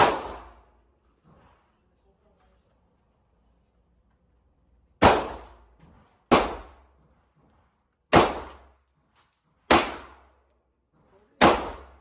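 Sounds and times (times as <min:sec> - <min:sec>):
shotgun shots: 0:00.0 - 0:00.6, 0:05.0 - 0:05.6, 0:06.3 - 0:06.8, 0:08.1 - 0:08.6, 0:09.7 - 0:10.2, 0:11.4 - 0:12.0.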